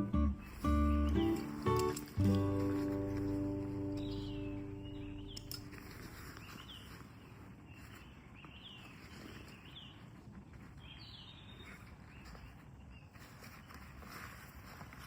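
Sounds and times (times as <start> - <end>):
faint outdoor hiss: 0.0 - 9.9
small birds chirping: 0.0 - 15.0.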